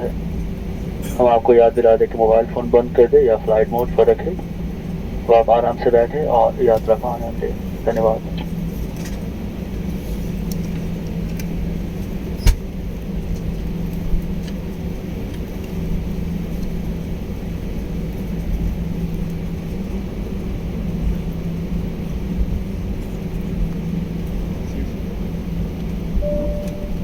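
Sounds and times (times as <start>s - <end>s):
air conditioning hum: 0.0s - 27.0s
airliner engines humming: 0.0s - 27.0s.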